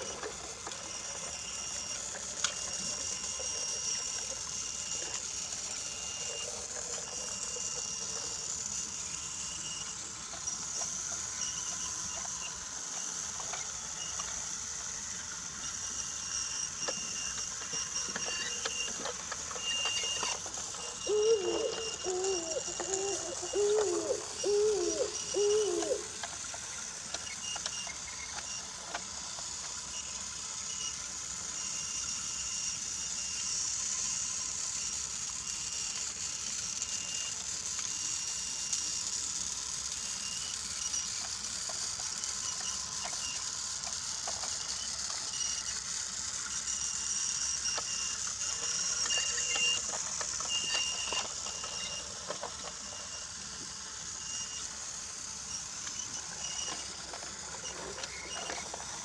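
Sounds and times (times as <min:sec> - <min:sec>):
toy train clicks on wooden track: 0:00.0 - 0:59.0
toy train motor whine: 0:00.0 - 0:59.0
short pitched calls: 0:20.8 - 0:26.2.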